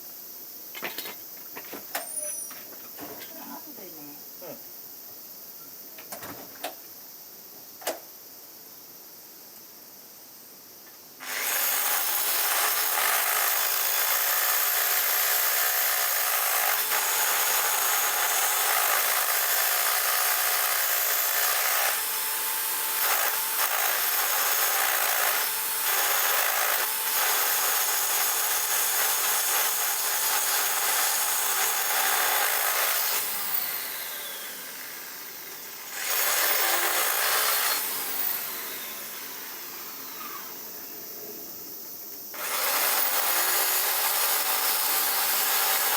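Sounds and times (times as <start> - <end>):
power tool grinding: 11.2 - 40.9, 42.4 - 45.9.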